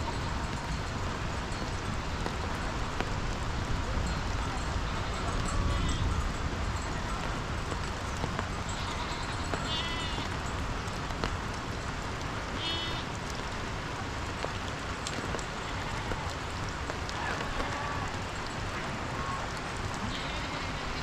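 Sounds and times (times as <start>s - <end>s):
background hiss: 7.8s - 21.0s
sheep bleating: 12.6s - 13.0s, 20.0s - 21.0s.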